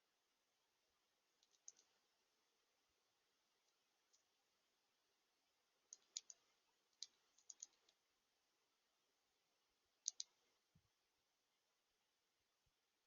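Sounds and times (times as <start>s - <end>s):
faint sharp clicks and taps: 5.9s - 8.0s.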